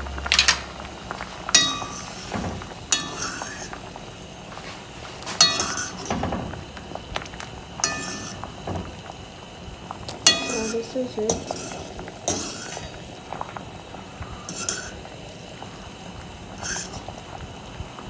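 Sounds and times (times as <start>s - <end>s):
metal clinking against pot: 1.5s - 3.9s, 5.3s - 9.2s, 10.0s - 13.1s, 14.4s - 15.2s, 16.6s - 17.1s.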